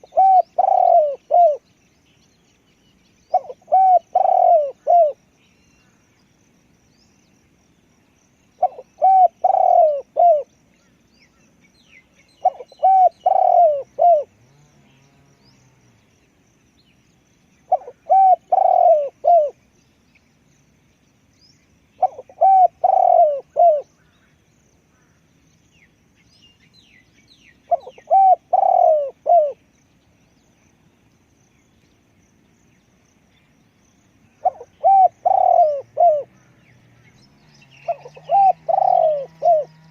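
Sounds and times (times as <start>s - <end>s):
dove cooing: 0.0s - 1.6s, 3.3s - 5.2s, 8.6s - 10.5s, 12.4s - 14.4s, 17.7s - 19.6s, 22.0s - 23.9s, 27.7s - 29.6s, 34.4s - 36.4s, 37.8s - 39.9s
small birds chirping: 0.0s - 39.9s.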